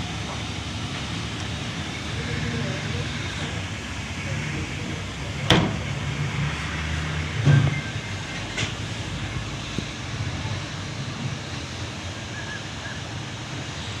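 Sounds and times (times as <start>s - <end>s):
steady low rumble: 0.0s - 12.1s.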